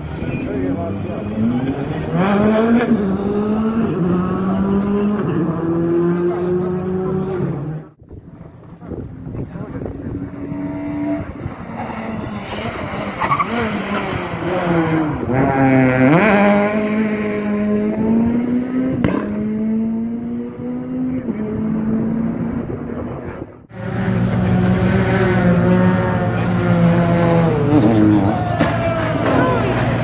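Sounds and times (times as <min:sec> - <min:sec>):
engine at high revs: 0:00.0 - 0:08.0, 0:09.9 - 0:30.0
rally car engine revving: 0:00.0 - 0:30.0.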